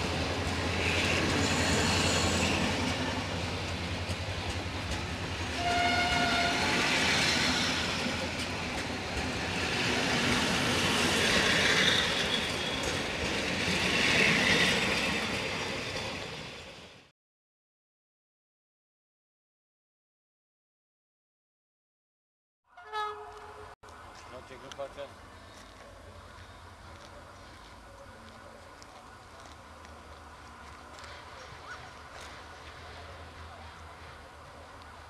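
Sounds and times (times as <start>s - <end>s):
train wheels rumbling: 0.0s - 16.9s
train horn blast: 5.5s - 6.8s, 22.7s - 23.8s.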